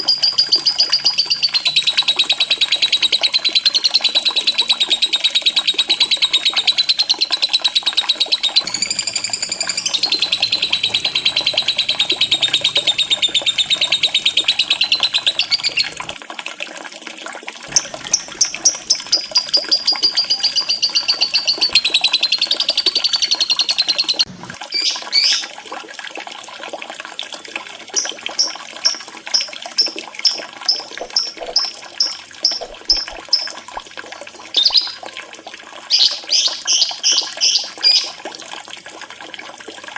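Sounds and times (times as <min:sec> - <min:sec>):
lovebird chattering trills: 0:00.0 - 0:16.2, 0:17.7 - 0:25.4, 0:28.0 - 0:33.6, 0:34.6 - 0:35.0
shrill bird chirps: 0:00.0 - 0:16.2, 0:17.7 - 0:25.5, 0:28.0 - 0:33.6, 0:34.6 - 0:35.0, 0:35.9 - 0:38.1
water trickling: 0:00.0 - 0:39.9.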